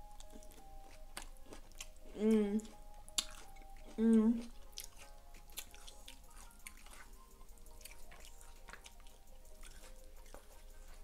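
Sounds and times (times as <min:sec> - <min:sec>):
person chewing soft food: 0:00.0 - 0:11.0
quiet background music: 0:00.0 - 0:11.0.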